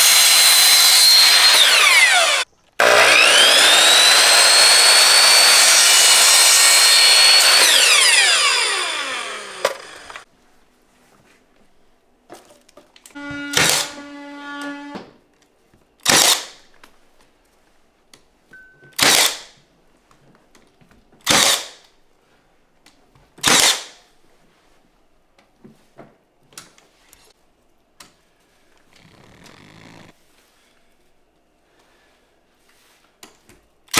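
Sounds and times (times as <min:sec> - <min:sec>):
pneumatic nailer firing: 0:00.0 - 0:10.2, 0:13.2 - 0:14.9, 0:16.0 - 0:16.6, 0:19.0 - 0:19.4, 0:21.3 - 0:21.8, 0:23.4 - 0:23.9
power tool whine: 0:00.0 - 0:10.2, 0:13.2 - 0:15.1, 0:29.0 - 0:30.1.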